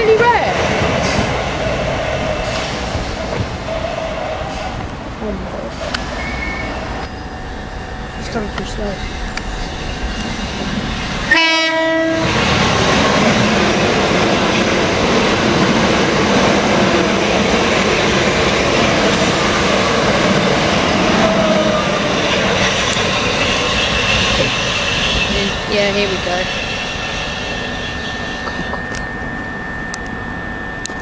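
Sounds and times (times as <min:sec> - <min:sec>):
train wheel-and-rail noise: 0:00.0 - 0:31.0
train horn blast: 0:11.3 - 0:12.4.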